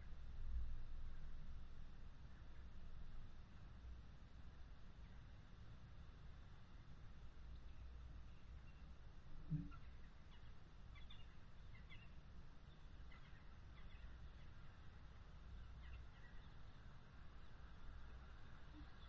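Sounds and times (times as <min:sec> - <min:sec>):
small birds chirping: 0:09.6 - 0:19.0.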